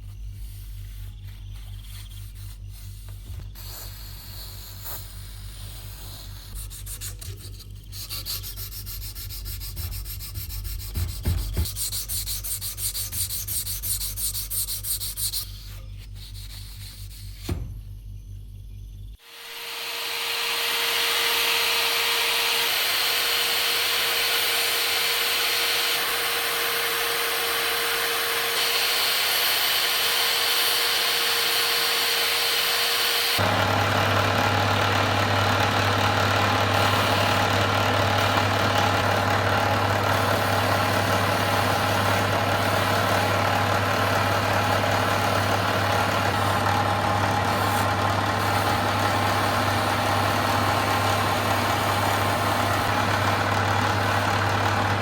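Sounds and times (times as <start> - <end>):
motor running: 19.2 - 55.0.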